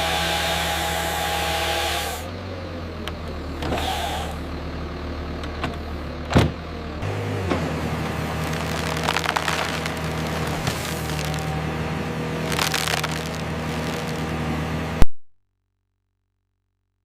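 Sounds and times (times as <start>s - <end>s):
heavy machine engine drone: 0.0s - 15.0s.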